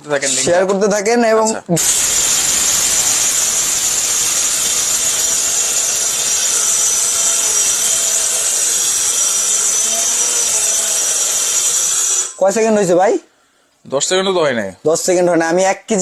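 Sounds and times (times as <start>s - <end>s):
electric grinder whirring: 1.8s - 12.4s.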